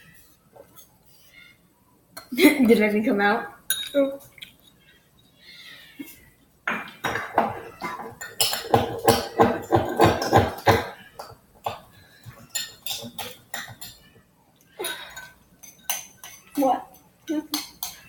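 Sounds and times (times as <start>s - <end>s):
utensil clattering against a bowl: 6.7s - 14.0s, 15.0s - 18.0s.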